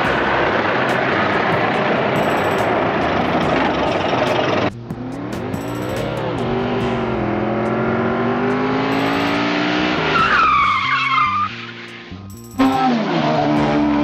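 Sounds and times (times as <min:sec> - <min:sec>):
car engine revving: 0:00.0 - 0:14.0
tire squeal: 0:08.9 - 0:14.0.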